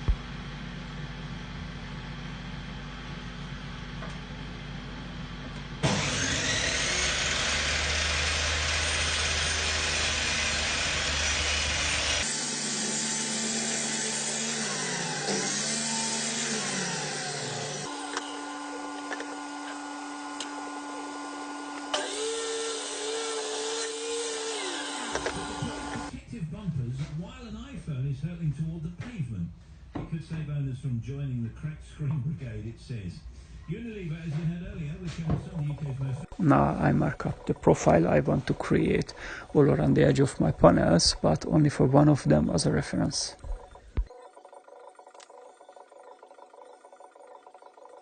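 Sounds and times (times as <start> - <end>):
table saw cutting wood: 5.8 - 26.1.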